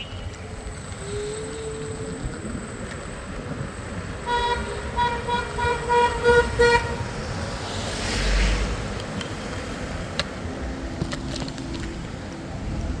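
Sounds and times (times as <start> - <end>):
street traffic: 0.0 - 13.0
vehicle horn honking: 4.2 - 7.2
vehicle passing close: 4.6 - 12.1.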